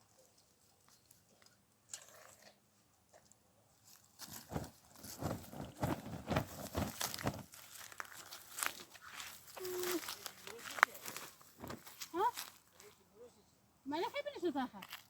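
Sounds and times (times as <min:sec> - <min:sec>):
dry straw crunching and rustling: 0:03.8 - 0:13.0.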